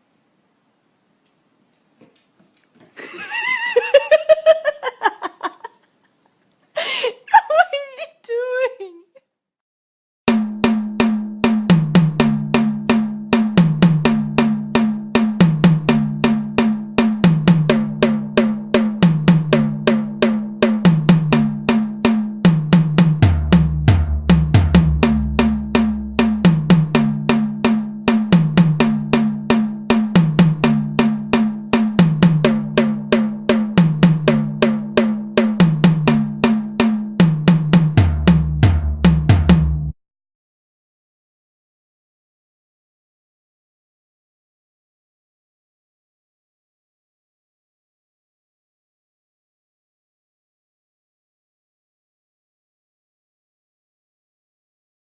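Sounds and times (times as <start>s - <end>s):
fast drum beat: 10.3s - 39.9s
bass line: 22.5s - 39.9s.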